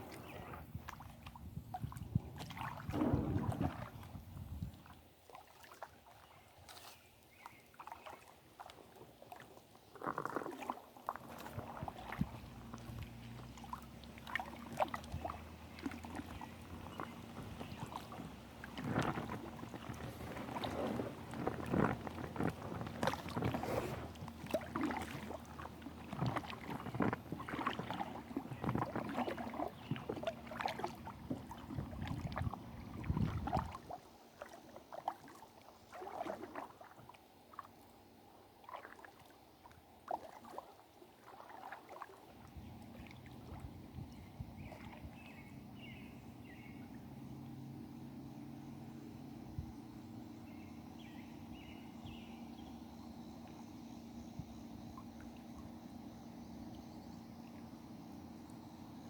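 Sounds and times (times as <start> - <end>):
paddle splashing in water: 0.0 - 47.2
low rumble: 2.8 - 4.8
water trickling: 7.4 - 37.7.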